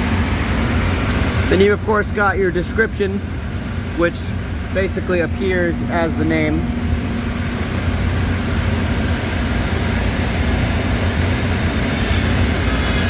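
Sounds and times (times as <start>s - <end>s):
machinery running: 3.4s - 12.8s.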